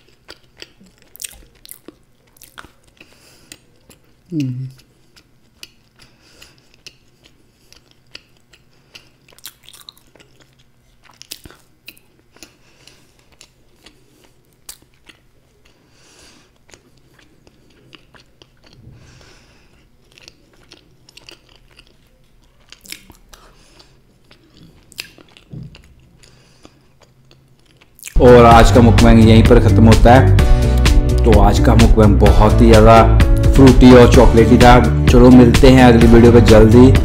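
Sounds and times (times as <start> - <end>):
wet mouth clicks and smacks: 6.8 - 12.5, 24.4 - 25.9.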